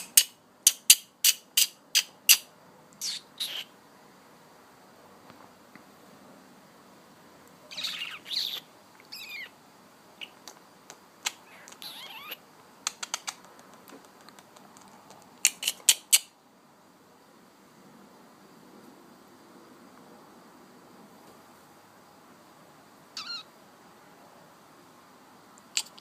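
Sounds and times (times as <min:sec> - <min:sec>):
bird sharp clicks and chirps: 0:00.0 - 0:03.7, 0:10.2 - 0:16.3
young bird harsh chirps: 0:01.2 - 0:03.8, 0:07.7 - 0:09.6, 0:10.2 - 0:10.6, 0:11.2 - 0:13.4, 0:15.4 - 0:16.3, 0:23.1 - 0:23.5.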